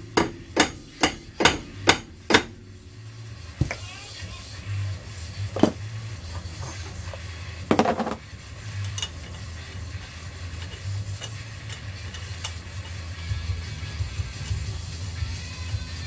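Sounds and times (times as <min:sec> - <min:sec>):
low steady hum: 0:00.0 - 0:13.3
metal tools clinking: 0:05.4 - 0:13.2.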